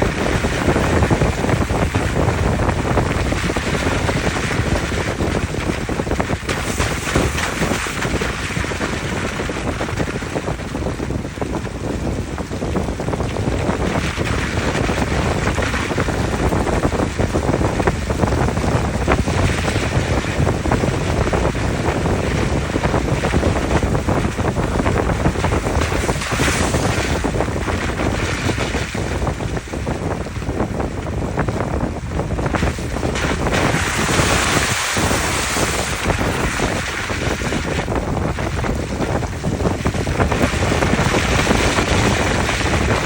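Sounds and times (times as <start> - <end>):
stones clicking under tyres: 0.0 - 10.8
tyres rumbling on unpaved road: 0.0 - 43.0.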